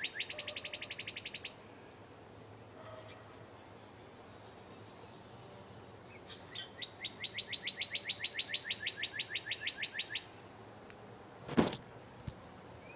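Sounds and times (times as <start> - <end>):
songbird trilling: 0.0 - 1.6, 6.1 - 10.5.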